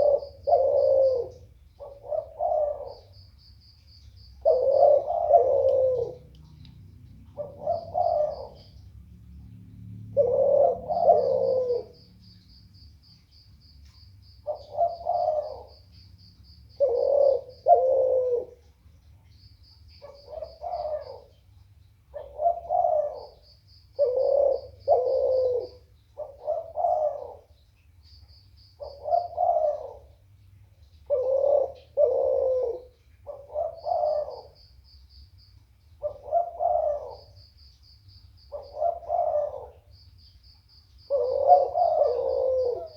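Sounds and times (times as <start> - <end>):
dove cooing: 0.0 - 3.3, 4.4 - 6.6, 7.2 - 9.0, 10.0 - 12.1, 14.4 - 15.9, 16.7 - 18.8, 20.0 - 21.4, 22.1 - 27.6, 28.8 - 30.2, 31.0 - 34.6, 36.0 - 37.4, 38.5 - 40.0, 41.0 - 42.9.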